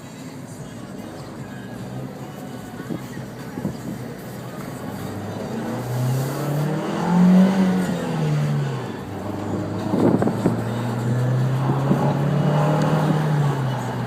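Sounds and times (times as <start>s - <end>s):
car engine accelerating: 3.7s - 14.0s.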